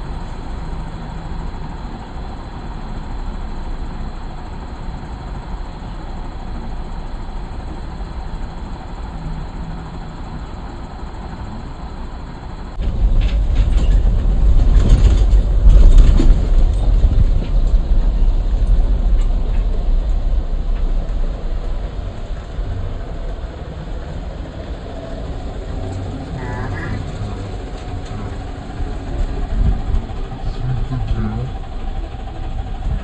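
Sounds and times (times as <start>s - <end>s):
jeep engine rumble: 0.0s - 33.0s
vehicle body rattle: 12.0s - 33.0s.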